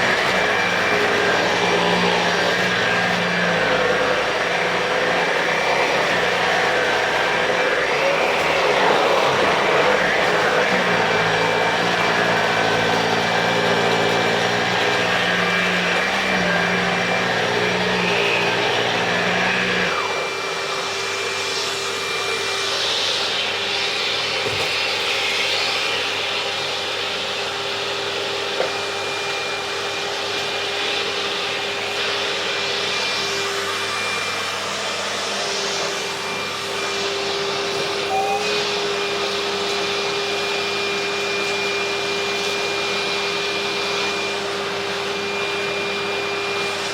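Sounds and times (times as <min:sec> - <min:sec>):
vacuum cleaner running: 0:00.0 - 0:46.9.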